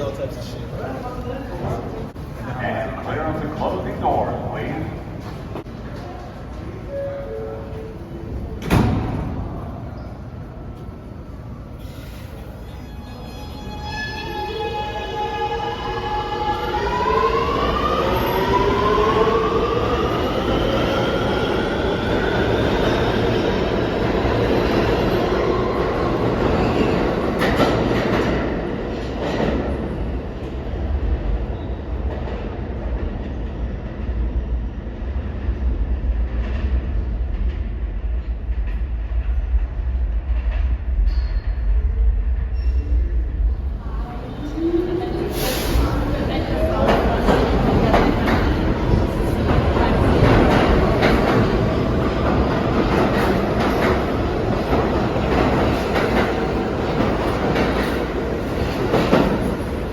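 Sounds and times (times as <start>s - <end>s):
subway train electric whine: 0.0s - 59.9s
train wheels rumbling: 13.5s - 59.9s.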